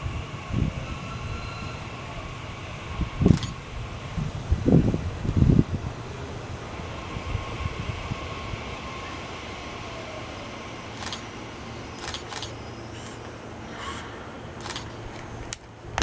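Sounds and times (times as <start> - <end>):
electric train rumble and hum: 0.0 - 16.0
faint whine: 0.0 - 16.0
camera shutter clicks: 11.0 - 11.3, 12.0 - 13.2, 14.6 - 15.0.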